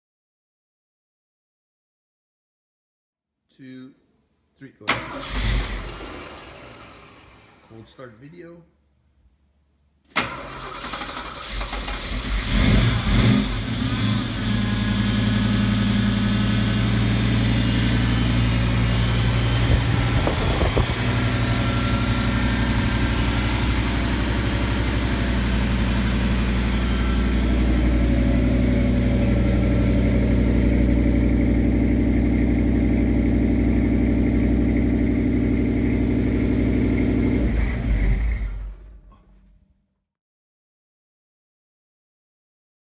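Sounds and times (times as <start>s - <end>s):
pickup engine starting and idling: 4.9s - 7.7s, 10.1s - 39.5s.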